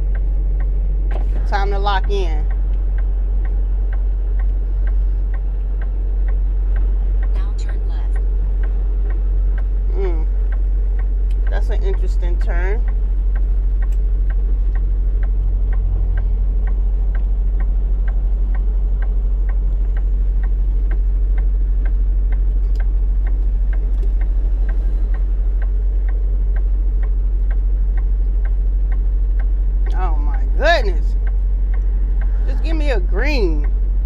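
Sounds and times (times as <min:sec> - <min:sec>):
truck engine drone: 0:00.0 - 0:34.0
turn signal clicking: 0:00.0 - 0:34.0.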